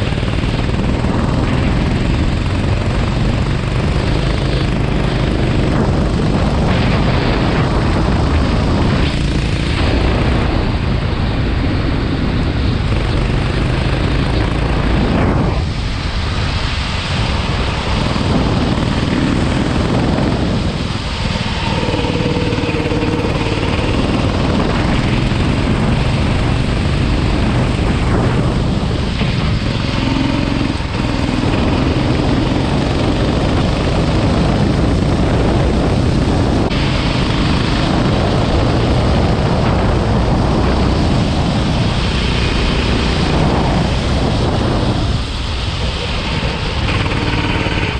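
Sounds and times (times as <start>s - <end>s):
kart engine running hard: 0.0s - 47.9s
wind noise: 0.0s - 47.9s.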